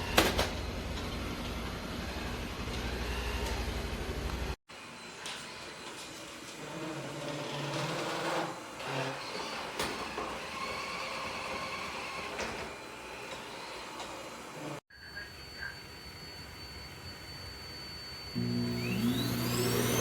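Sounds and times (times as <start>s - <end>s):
robot vacuum whirring: 18.4s - 20.0s.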